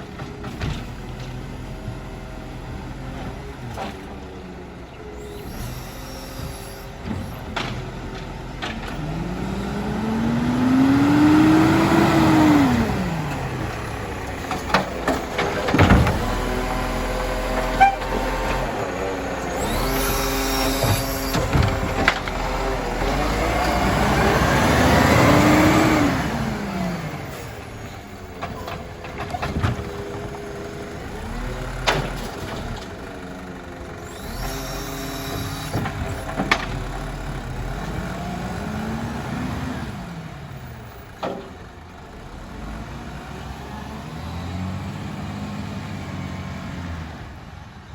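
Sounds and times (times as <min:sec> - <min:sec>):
garbage truck engine revving: 0:00.6 - 0:47.6
sharp knocks and clanks: 0:14.4 - 0:16.6.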